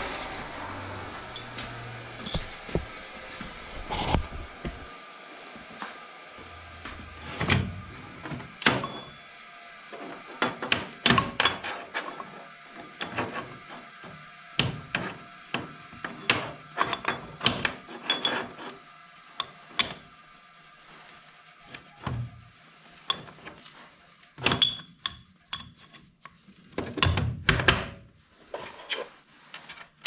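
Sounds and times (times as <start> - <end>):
metal tools clinking and knocking: 10.4 - 12.3, 16.0 - 18.7, 23.1 - 27.2.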